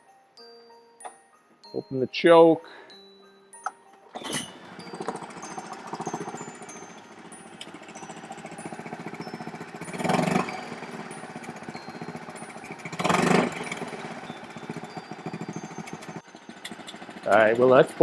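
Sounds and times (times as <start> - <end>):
outboard motor idling: 4.1 - 18.0.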